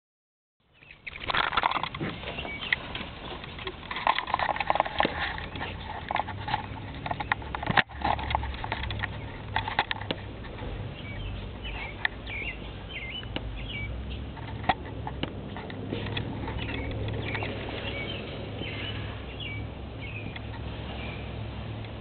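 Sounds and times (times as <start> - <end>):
baby birds cheeping: 0.7 - 1.3, 2.1 - 3.0, 10.7 - 14.3, 16.1 - 21.4
clicks and scrapes: 1.0 - 10.8, 14.3 - 18.9.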